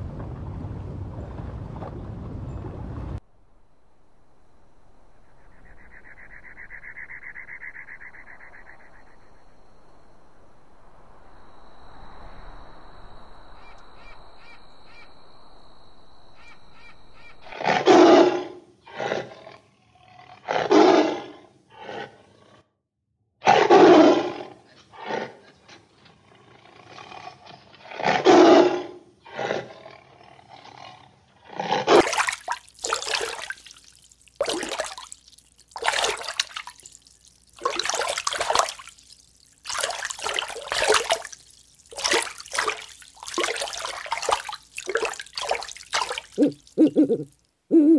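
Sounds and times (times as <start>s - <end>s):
water bubbling and splashing: 31.9s - 47.5s
cheetah growling calls: 46.4s - 47.9s.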